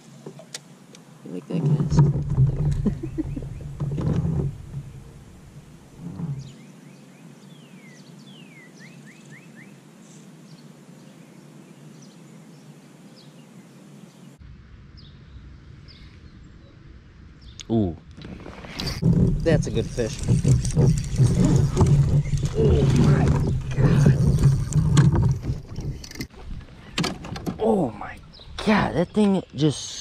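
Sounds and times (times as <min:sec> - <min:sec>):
low thumps and rumble: 0:01.7 - 0:06.6, 0:18.0 - 0:28.7
small birds chirping: 0:06.4 - 0:14.4, 0:27.6 - 0:30.0.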